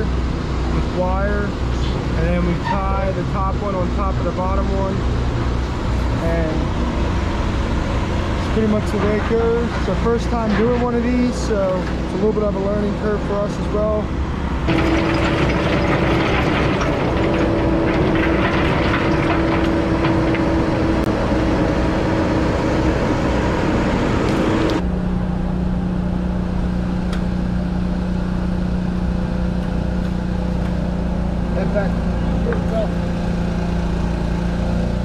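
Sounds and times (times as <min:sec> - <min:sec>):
excavator diesel engine running: 0:00.0 - 0:35.0
clattering: 0:14.7 - 0:21.1.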